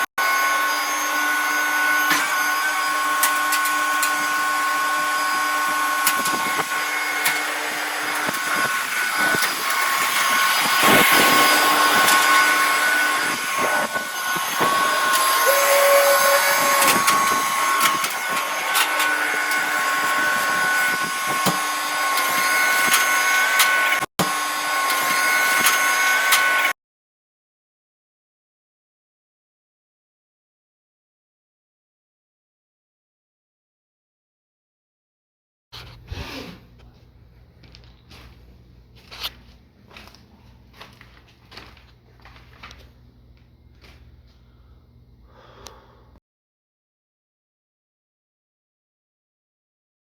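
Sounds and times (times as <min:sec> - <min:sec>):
power tool whining: 0:00.0 - 0:26.8.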